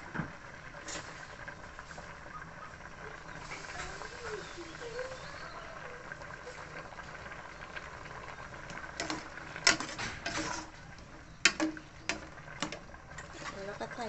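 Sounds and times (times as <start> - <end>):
utensils knocking against pot: 9.0 - 10.7, 11.4 - 13.6.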